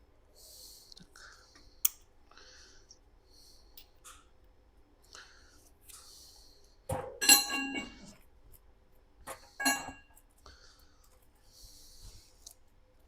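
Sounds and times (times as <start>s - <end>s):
metal parts clinking: 9.6s - 10.0s.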